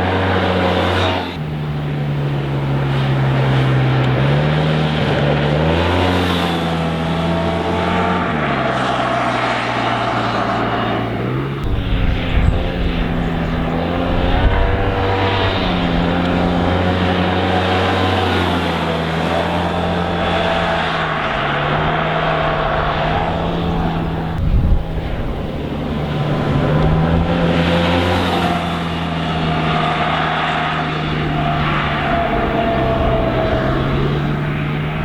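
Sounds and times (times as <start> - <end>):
motorcycle engine revving: 0.0 - 35.0
low rumble: 11.4 - 16.6.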